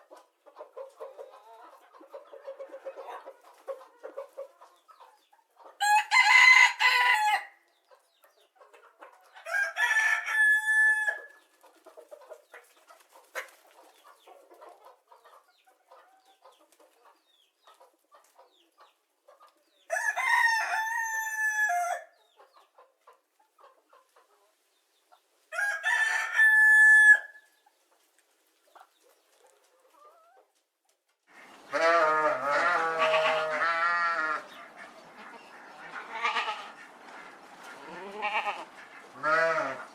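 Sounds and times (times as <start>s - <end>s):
rooster crowing: 5.8s - 7.5s, 9.5s - 11.3s, 19.9s - 22.0s, 25.5s - 27.4s
low quavering animal call: 31.4s - 39.9s.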